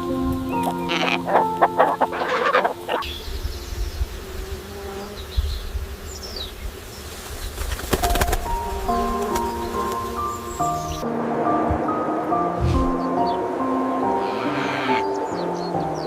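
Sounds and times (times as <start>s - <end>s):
soft music: 0.0s - 5.0s, 8.0s - 16.0s
low wind rumble: 0.0s - 16.0s
animal sounds: 0.5s - 3.1s, 14.0s - 16.0s.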